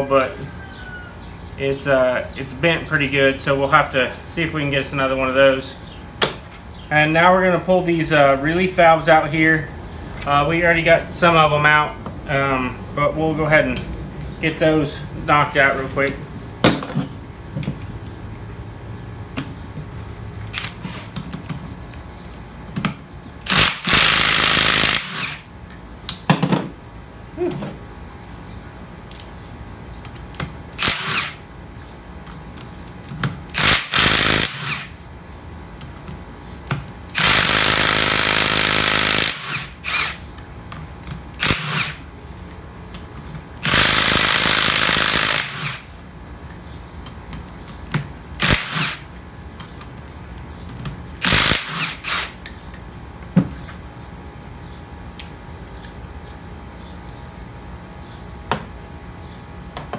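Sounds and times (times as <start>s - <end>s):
power tool bursts: 23.4s - 25.5s, 30.7s - 31.4s, 33.5s - 35.0s, 37.1s - 40.2s, 41.4s - 42.0s, 43.6s - 45.9s, 48.4s - 49.1s, 51.2s - 52.4s.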